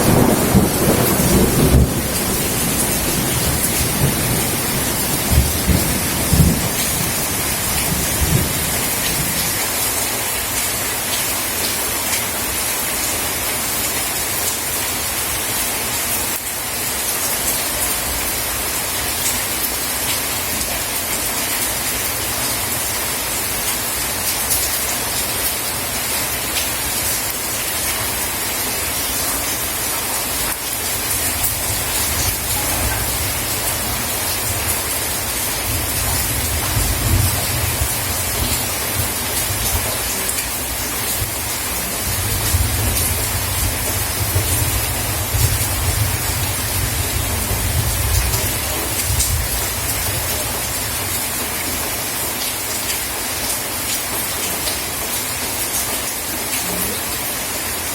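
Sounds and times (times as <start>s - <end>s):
thunder rumbling: 0.0s - 9.6s, 30.8s - 50.4s
heavy rain falling: 0.0s - 57.9s.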